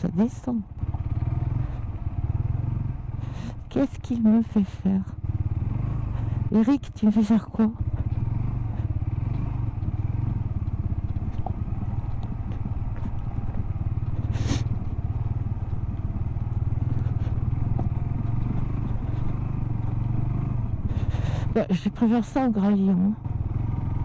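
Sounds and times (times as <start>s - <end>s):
motorcycle engine at low revs: 0.0s - 24.0s
stones ticking under tyres: 0.7s - 1.5s, 7.8s - 21.6s.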